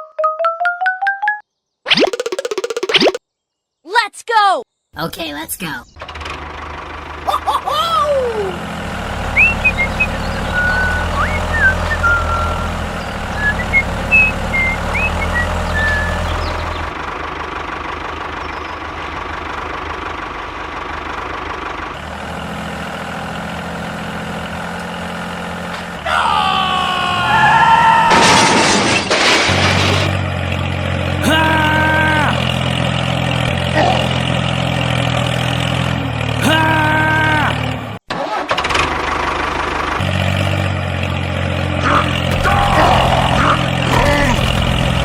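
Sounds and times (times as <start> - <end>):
short high chirps: 1.9 - 3.2.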